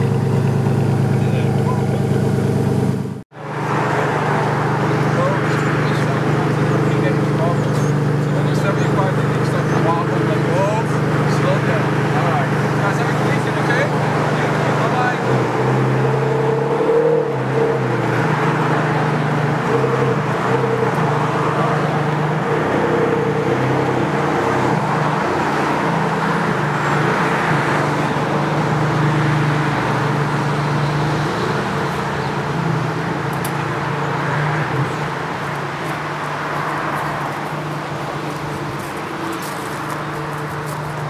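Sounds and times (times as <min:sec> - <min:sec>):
sports car engine idling: 0:00.0 - 0:03.2, 0:04.4 - 0:15.1, 0:27.9 - 0:41.0.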